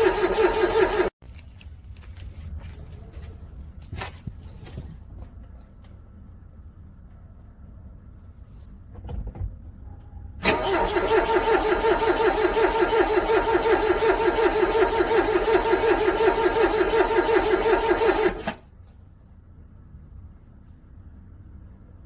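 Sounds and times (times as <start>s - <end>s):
car starter cranking engine: 0.0s - 1.1s, 10.4s - 18.7s.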